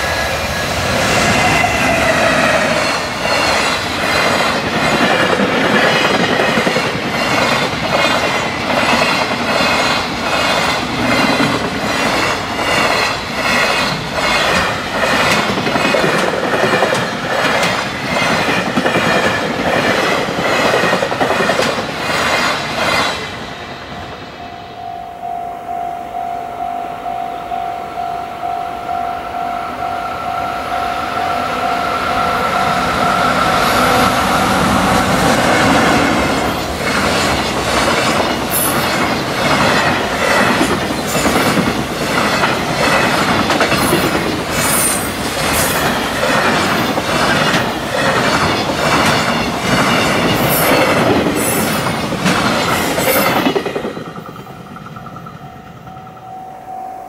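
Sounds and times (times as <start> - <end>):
freight train wheels clacking: 0.0 - 24.3, 31.4 - 56.2
level crossing warning bell: 24.2 - 34.0, 55.3 - 57.0.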